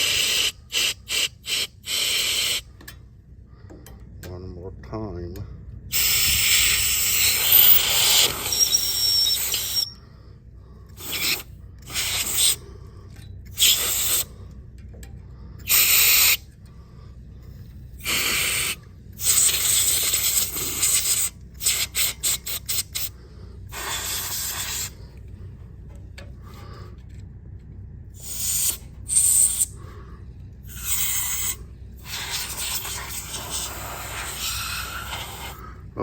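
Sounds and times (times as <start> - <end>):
compressed air hissing blasts: 0.0 - 2.7, 5.9 - 10.0, 10.9 - 12.6, 13.5 - 14.3, 15.6 - 16.4, 18.0 - 25.1, 28.2 - 29.8, 30.7 - 35.6
quick short air puffs: 0.0 - 2.7, 5.9 - 9.9, 11.0 - 12.6, 13.5 - 14.4, 15.6 - 16.4, 18.0 - 25.2, 28.2 - 29.8, 30.7 - 35.6.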